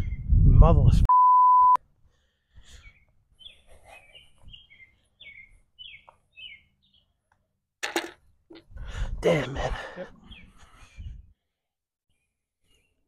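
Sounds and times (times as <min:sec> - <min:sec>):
faint bird chirps: 0:02.7 - 0:07.2.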